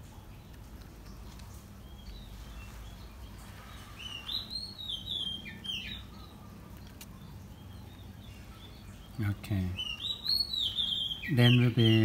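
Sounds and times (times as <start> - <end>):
bird singing whistled notes: 3.9 - 6.3, 8.8 - 12.0.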